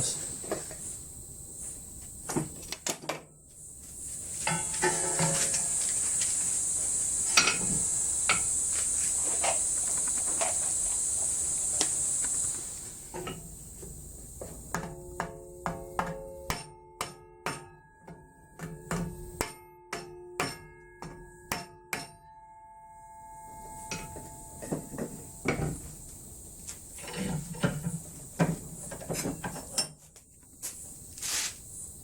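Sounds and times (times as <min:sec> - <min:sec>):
high-pitched hiss: 0:00.0 - 0:02.8, 0:03.4 - 0:16.5, 0:22.9 - 0:32.0.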